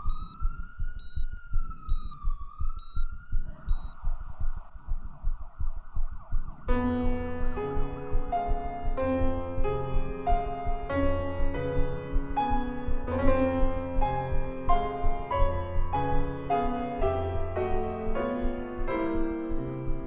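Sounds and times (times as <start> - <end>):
grand piano playing chords: 6.7 - 20.0.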